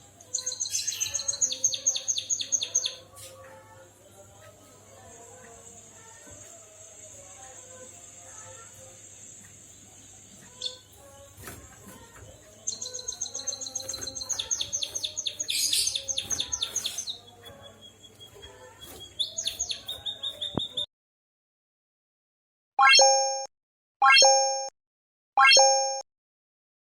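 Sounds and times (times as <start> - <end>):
bird singing trills and whistles: 0.3 - 3.2, 12.6 - 20.9.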